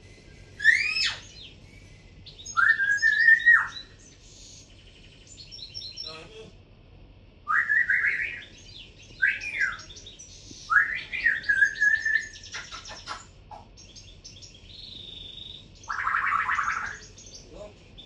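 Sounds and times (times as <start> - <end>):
cockatiel calling: 0.4 - 4.2, 7.5 - 14.0, 14.8 - 17.4.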